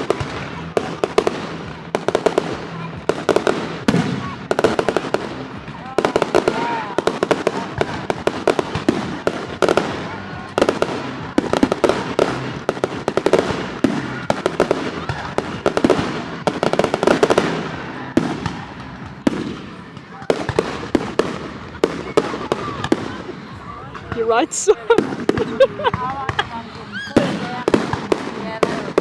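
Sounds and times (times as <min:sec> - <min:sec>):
fireworks crackling: 0:00.0 - 0:29.0
fireworks cracks and bangs: 0:00.0 - 0:29.0.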